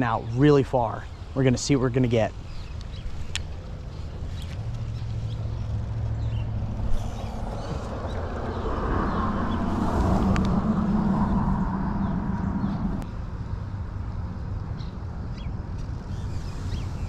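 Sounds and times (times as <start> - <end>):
low motor hum: 2.4 - 14.8.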